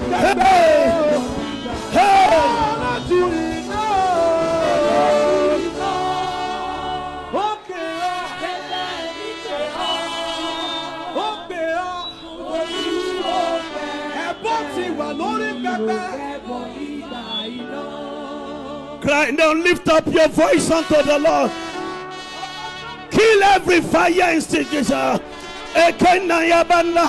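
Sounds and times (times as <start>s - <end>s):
man singing wordless phrases: 0.0s - 6.5s, 7.3s - 10.0s, 11.1s - 16.5s, 19.0s - 21.7s, 23.1s - 27.0s
sustained musical backing: 0.0s - 27.0s.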